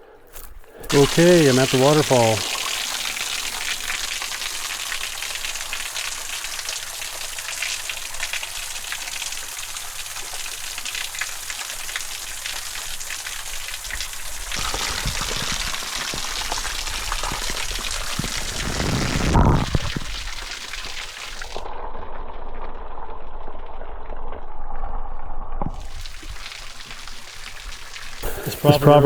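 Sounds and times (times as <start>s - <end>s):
waterfall splashing: 0.8s - 21.7s, 25.7s - 29.0s.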